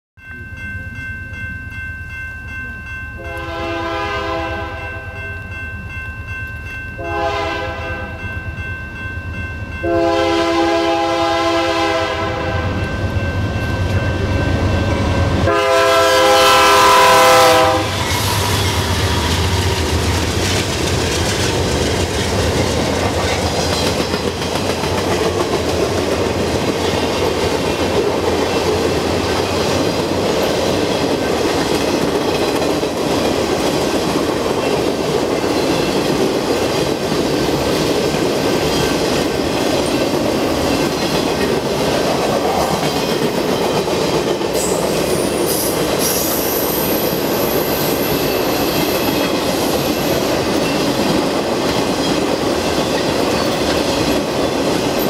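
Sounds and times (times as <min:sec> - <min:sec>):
diesel locomotive engines rumbling: 0:02.5 - 0:55.0
locomotive air horn blasts: 0:03.2 - 0:05.2, 0:07.0 - 0:08.2, 0:09.8 - 0:12.8, 0:15.4 - 0:19.0
train wheels clacking over rail joints: 0:18.0 - 0:47.3.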